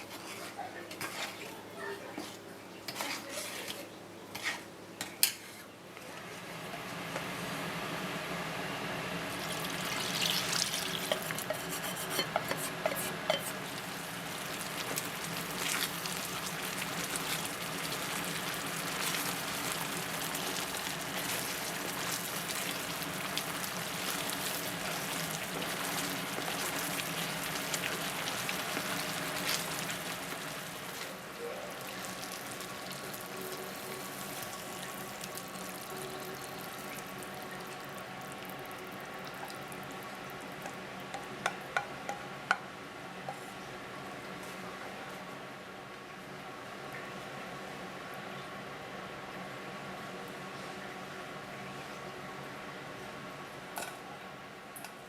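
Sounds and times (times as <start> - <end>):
food sizzling in a frying pan: 6.7 - 41.6.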